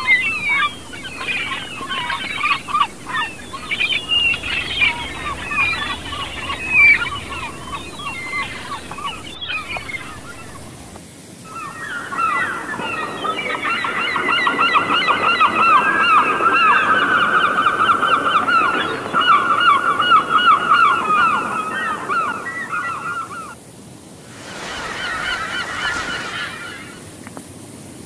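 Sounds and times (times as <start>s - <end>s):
forest stream rushing: 0.0s - 14.1s, 23.5s - 28.0s
birds calling: 0.0s - 23.6s, 24.3s - 27.4s.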